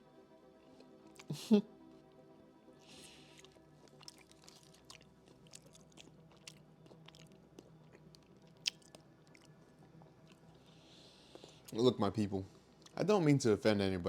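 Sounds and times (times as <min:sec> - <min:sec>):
chewing wafer bar crunches: 0:03.3 - 0:09.6.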